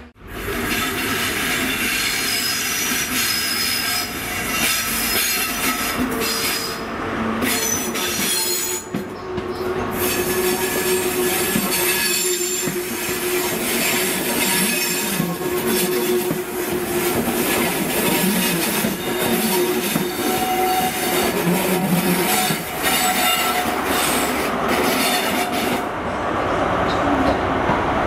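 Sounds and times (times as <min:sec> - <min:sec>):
train wheels squealing: 0:00.7 - 0:25.8.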